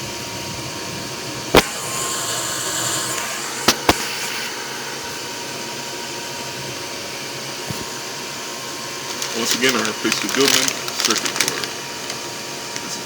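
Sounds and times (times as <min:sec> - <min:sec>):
furnace blower whirring: 0:00.0 - 0:13.0
short hiss: 0:01.6 - 0:05.7.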